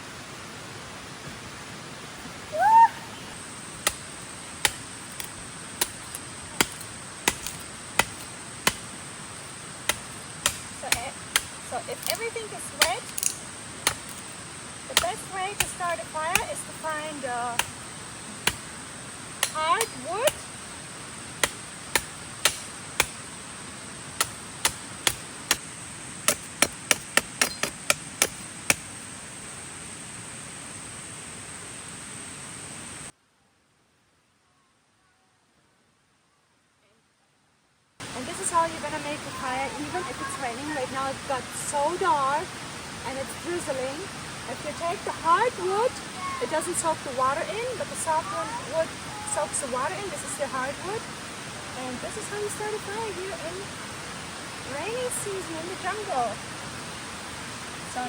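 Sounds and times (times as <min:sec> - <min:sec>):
wood chopping: 0:03.8 - 0:09.0, 0:09.8 - 0:14.3, 0:14.9 - 0:16.6, 0:17.5 - 0:18.8, 0:19.4 - 0:20.5, 0:21.4 - 0:23.4, 0:24.1 - 0:28.9.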